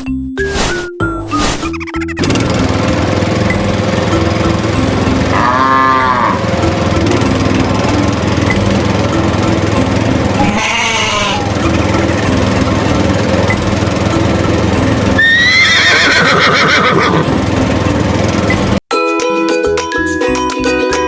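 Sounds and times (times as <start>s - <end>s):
small engine running: 1.8s - 18.8s
wavering animal calls: 5.3s - 6.5s, 10.3s - 11.7s.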